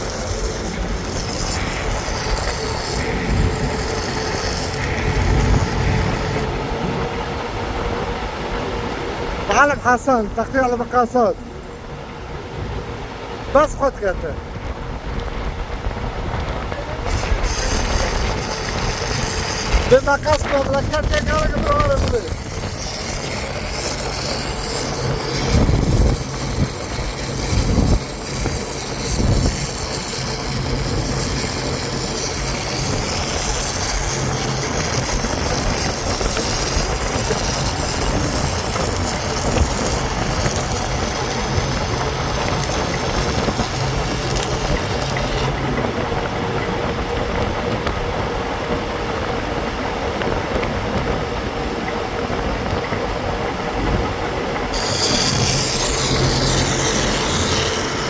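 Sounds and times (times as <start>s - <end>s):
high hiss: 0.0s - 12.4s
machinery humming: 0.0s - 58.0s.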